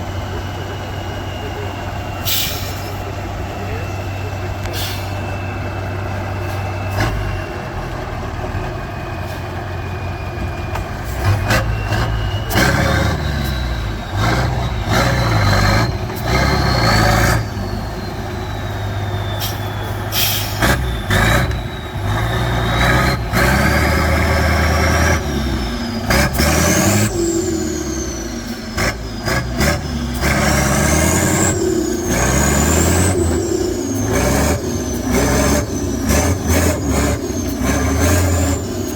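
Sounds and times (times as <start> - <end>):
truck engine revving: 0.0 - 38.9.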